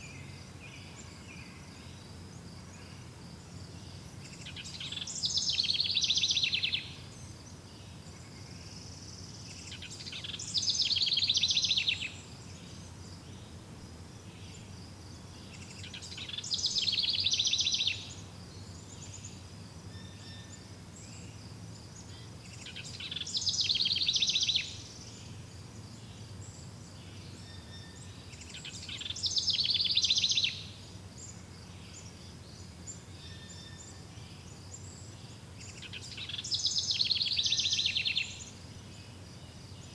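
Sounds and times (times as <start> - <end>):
songbird trilling: 4.4 - 7.0, 9.6 - 12.4, 15.4 - 18.2, 22.6 - 25.0, 27.4 - 30.8, 35.7 - 38.5.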